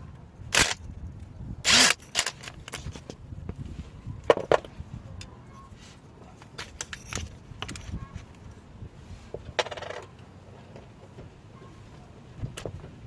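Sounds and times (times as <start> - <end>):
metal tools clinking: 6.4 - 8.1.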